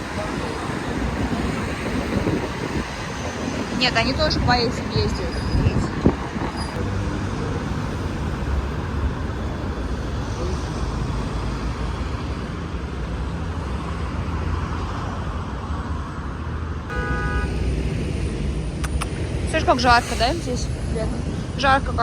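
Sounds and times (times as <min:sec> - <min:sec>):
road traffic rumble: 0:00.0 - 0:22.0
short horn toot: 0:16.9 - 0:17.6.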